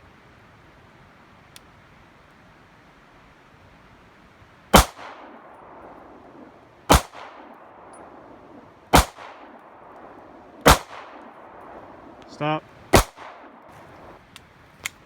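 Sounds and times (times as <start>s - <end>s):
gunshots with echoing tail: 4.8s - 12.2s, 12.9s - 14.1s.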